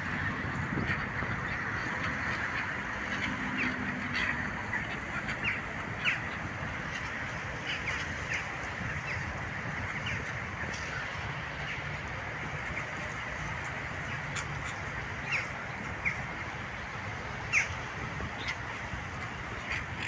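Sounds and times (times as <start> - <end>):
steady background rush: 0.0 - 20.0
birds calling: 0.2 - 10.4.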